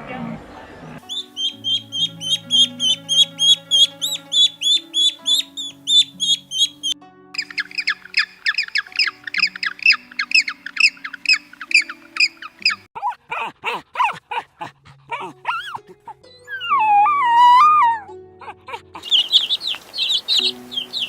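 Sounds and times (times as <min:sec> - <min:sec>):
soft background music: 0:00.1 - 0:12.9, 0:13.5 - 0:21.0
animal high chirps: 0:01.0 - 0:12.9, 0:19.0 - 0:21.0
lower pitch-bending animal calls: 0:01.0 - 0:12.9, 0:16.4 - 0:18.1.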